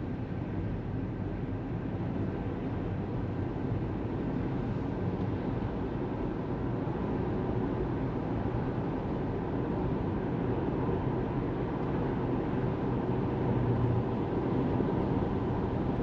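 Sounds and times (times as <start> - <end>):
tyres rumbling on road: 1.6 - 16.0.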